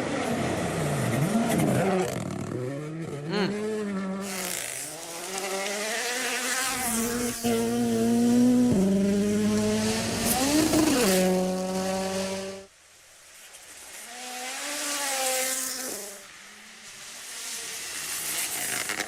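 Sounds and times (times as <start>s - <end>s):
rally car engine revving: 0.0s - 12.7s.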